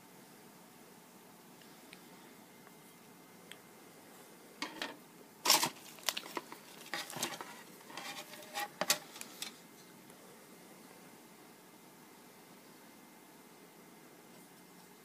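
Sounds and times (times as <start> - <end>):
packaging crinkling and rustling: 5.4 - 9.6.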